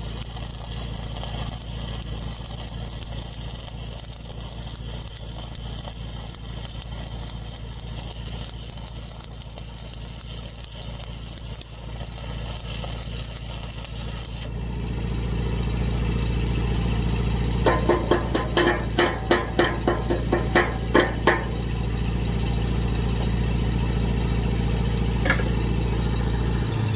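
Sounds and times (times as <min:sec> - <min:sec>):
welding arc crackling and hissing: 0:00.0 - 0:14.5, 0:17.6 - 0:21.6
engine hum: 0:00.1 - 0:26.9.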